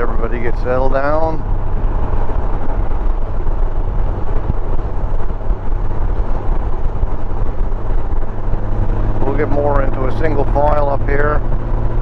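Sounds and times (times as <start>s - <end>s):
wind noise: 0.0s - 12.0s
motorcycle engine: 0.7s - 12.0s.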